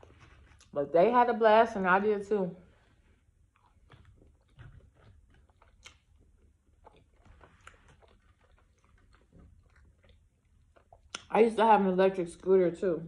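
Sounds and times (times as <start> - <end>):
crunchy chips chewing: 3.5 - 11.3.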